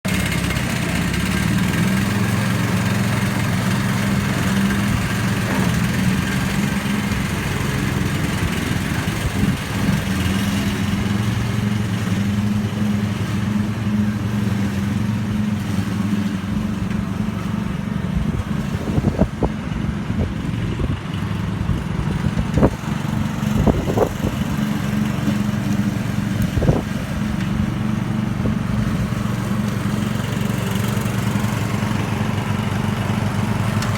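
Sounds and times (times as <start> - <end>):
ride-on lawn mower engine: 0.0 - 33.9.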